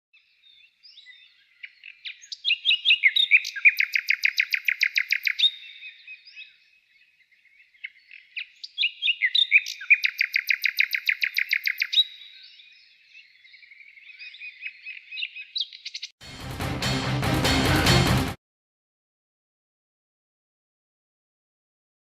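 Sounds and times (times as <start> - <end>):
faint bird chirps: 0.2 - 16.1
songbird singing: 0.2 - 16.2.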